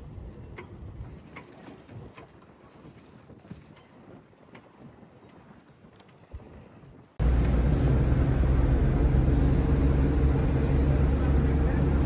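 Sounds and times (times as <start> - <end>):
large engine idling: 7.2 - 12.0.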